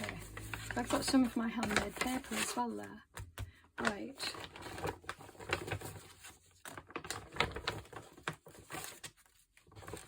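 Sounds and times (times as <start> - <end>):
paper rustling and shuffling: 0.0 - 10.0.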